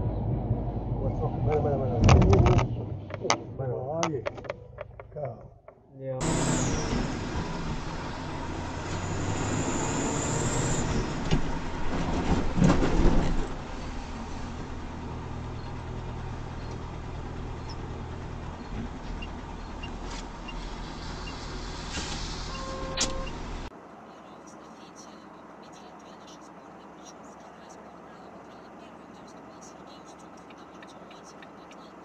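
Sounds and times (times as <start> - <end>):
road noise: 0.0 - 32.0
vehicle engine running: 0.0 - 32.0
knocks and rattles: 2.0 - 5.8.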